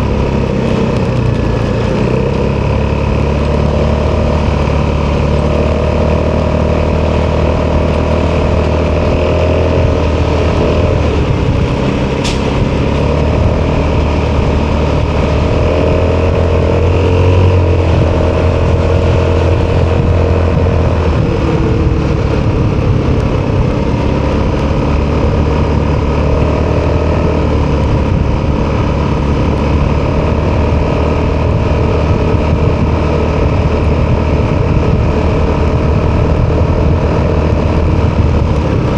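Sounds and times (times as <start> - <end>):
scooter engine running: 0.0 - 38.9.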